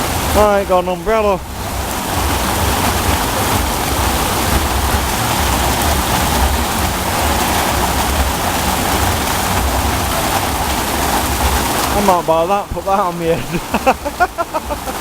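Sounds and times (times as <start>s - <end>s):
low rumble: 0.0s - 12.0s
heavy rain pouring on street: 0.0s - 15.0s.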